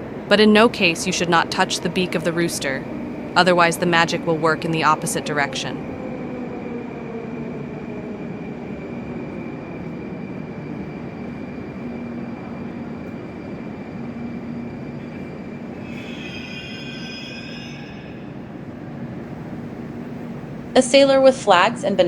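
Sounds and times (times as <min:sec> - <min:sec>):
train rumble: 0:00.0 - 0:22.0
high-pitched squeal: 0:15.8 - 0:18.4.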